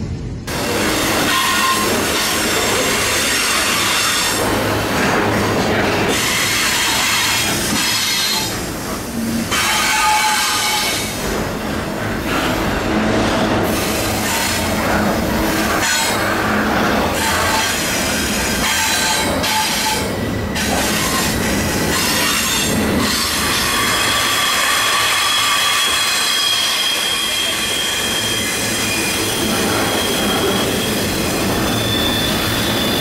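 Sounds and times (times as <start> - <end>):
steel wheels rushing on rail: 0.0 - 33.0
high wheel squeals: 1.0 - 4.4, 15.7 - 33.0.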